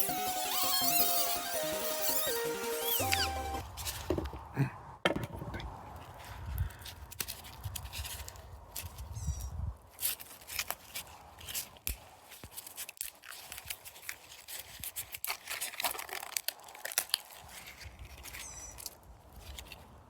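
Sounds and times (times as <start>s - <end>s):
capacitor layers crackling and tearing: 10.0s - 19.8s.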